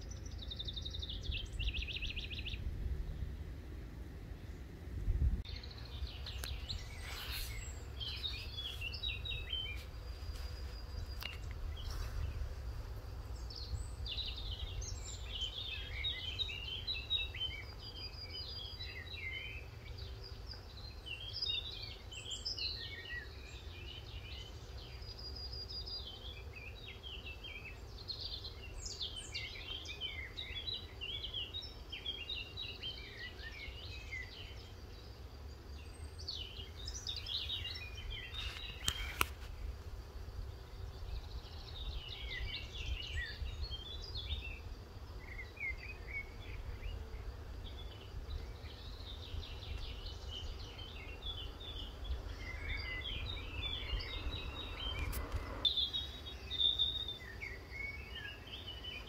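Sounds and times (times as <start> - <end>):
songbirds chirping and twittering: 0.0 - 59.0
steady low rumble: 1.2 - 6.2.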